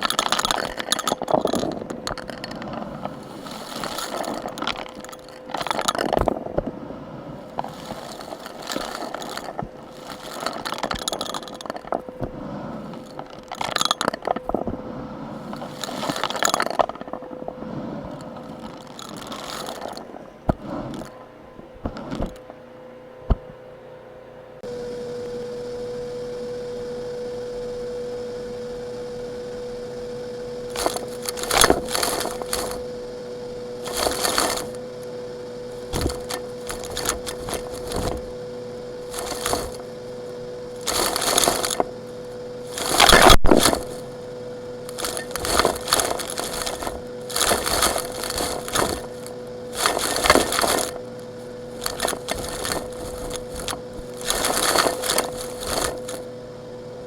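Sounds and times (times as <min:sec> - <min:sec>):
rocky material crunching: 0:00.0 - 0:14.7, 0:30.6 - 0:56.3
steady hum: 0:00.0 - 0:57.0.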